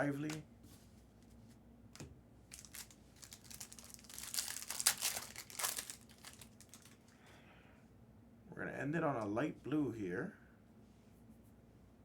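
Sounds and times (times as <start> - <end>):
wrapper crinkling: 2.5 - 7.1.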